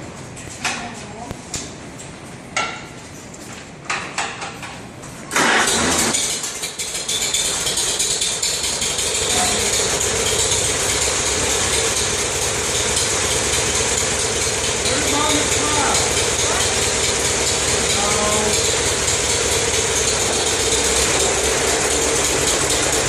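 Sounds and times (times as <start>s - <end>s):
tractor engine running: 5.4s - 23.0s.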